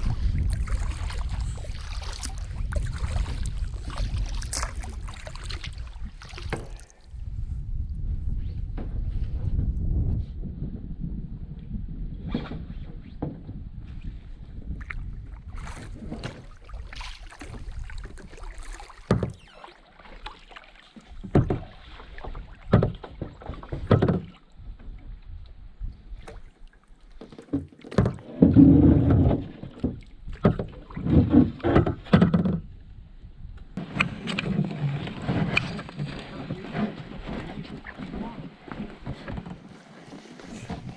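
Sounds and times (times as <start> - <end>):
paddle knocking against hull: 0.0 - 7.0, 14.8 - 25.0, 27.1 - 32.8, 33.8 - 40.9
paddle strokes in water: 0.0 - 7.2, 12.4 - 32.7, 33.8 - 40.9.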